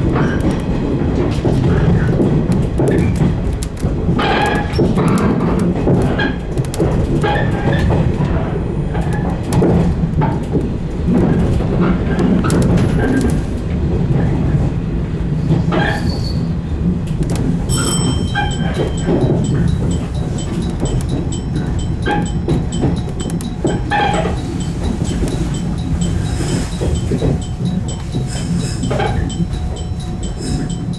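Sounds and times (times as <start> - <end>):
train wheels rumbling on rails: 0.0 - 30.9
clicks: 17.1 - 30.9
high steady squeal: 17.7 - 30.9.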